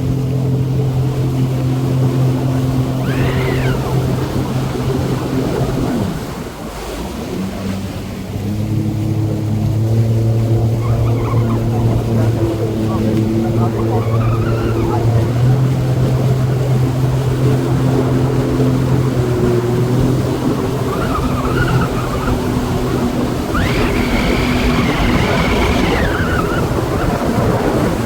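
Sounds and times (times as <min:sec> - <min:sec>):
jet ski engine running: 0:00.0 - 0:28.0
water and wind noise: 0:00.0 - 0:28.0
high engine whine: 0:07.2 - 0:28.0.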